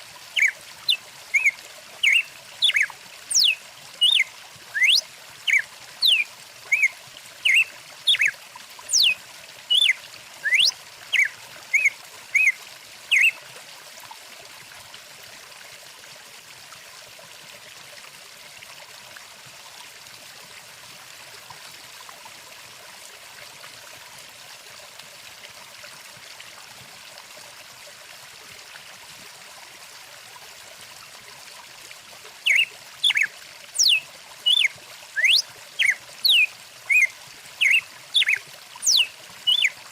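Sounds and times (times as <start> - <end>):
stream flowing: 0.0 - 39.9
songbird chirps: 0.3 - 13.4, 32.4 - 39.8.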